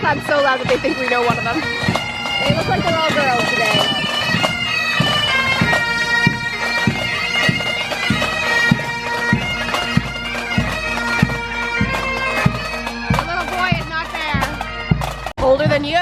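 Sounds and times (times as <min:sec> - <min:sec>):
bagpipes playing melody: 0:00.0 - 0:15.9
drum beat: 0:00.0 - 0:16.0.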